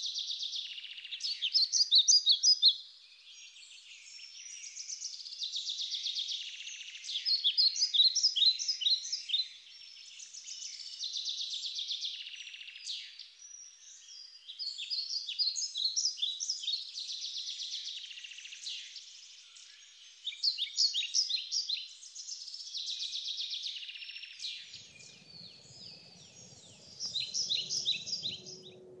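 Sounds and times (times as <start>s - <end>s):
birds singing: 0.0s - 29.0s
faint low rumble: 24.7s - 29.0s.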